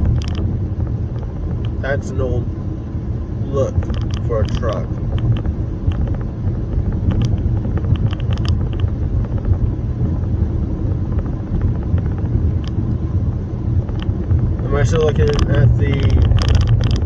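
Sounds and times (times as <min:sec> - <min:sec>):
car road and engine rumble: 0:00.0 - 0:17.0
light clicks: 0:14.9 - 0:17.0.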